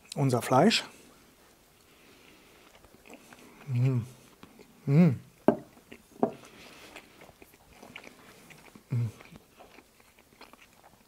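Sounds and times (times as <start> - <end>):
man chewing: 1.3 - 11.0
man humming mmh: 3.6 - 4.2, 4.8 - 5.3, 8.9 - 9.3.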